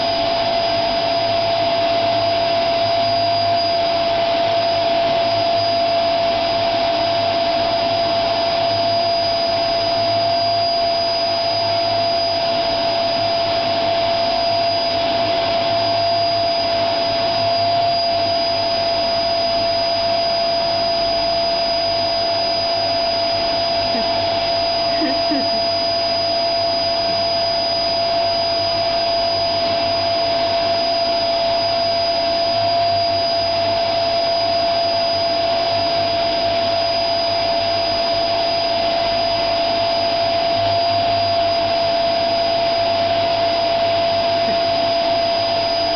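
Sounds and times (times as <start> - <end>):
vacuum cleaner running: 0.0 - 45.9.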